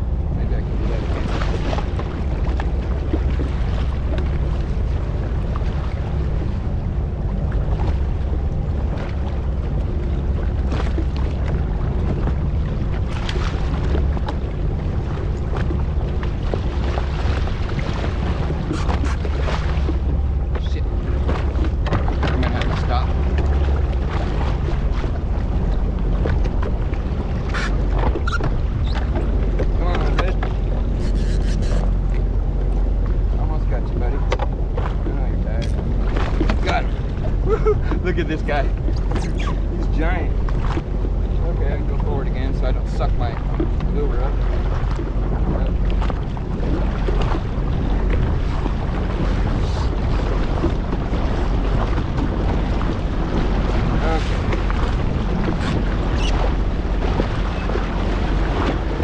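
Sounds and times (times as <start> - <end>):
jet ski engine humming: 0.0 - 59.0
water splashes: 0.0 - 59.0
wind rumbling on microphone: 0.0 - 59.0.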